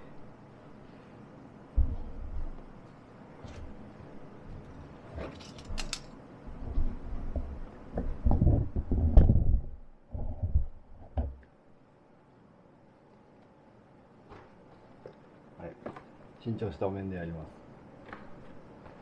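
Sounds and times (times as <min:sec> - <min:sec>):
objects being handled and set down: 0:04.5 - 0:09.4.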